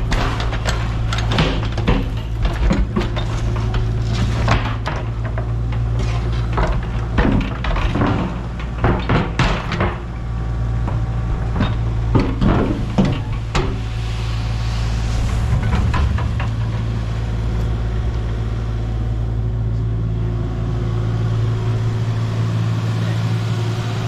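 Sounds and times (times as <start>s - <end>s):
metal knocks and clanks: 0.0s - 10.2s, 10.8s - 14.0s, 15.0s - 18.4s
low engine hum: 0.0s - 24.0s.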